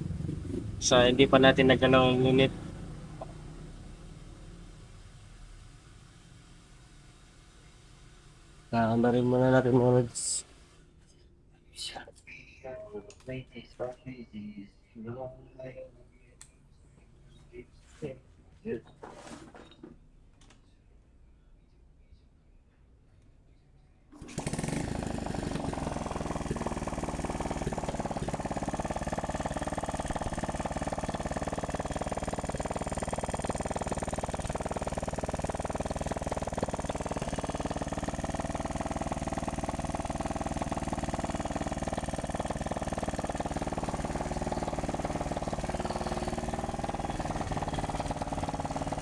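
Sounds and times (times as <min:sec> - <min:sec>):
motorcycle engine running: 0:00.0 - 0:10.3, 0:24.2 - 0:49.0.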